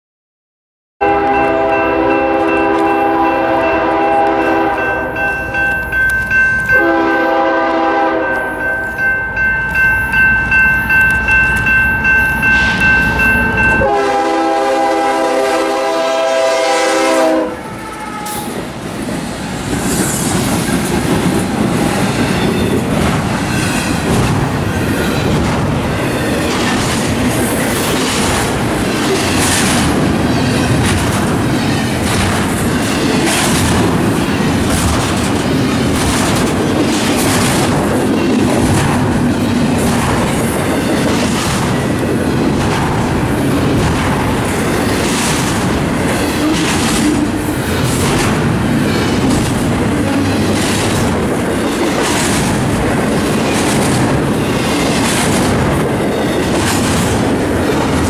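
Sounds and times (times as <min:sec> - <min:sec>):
locomotive air horn blasts: 0:01.0 - 0:05.2, 0:06.7 - 0:08.6, 0:13.8 - 0:18.6
crossing bell ringing: 0:01.0 - 0:15.4, 0:21.6 - 0:26.6, 0:30.1 - 0:30.8.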